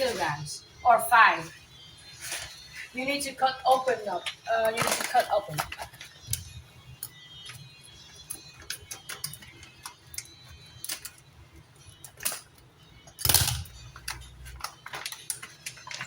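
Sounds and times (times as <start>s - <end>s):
plastic bag rustling: 0.0s - 6.2s, 14.4s - 16.0s.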